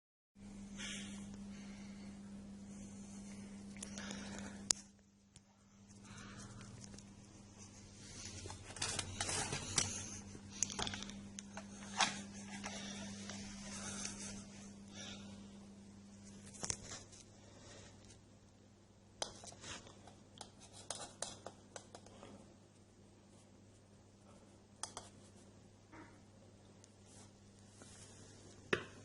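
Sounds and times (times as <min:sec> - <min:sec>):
faint low hum: 0:00.4 - 0:29.0
objects being handled: 0:05.8 - 0:14.8.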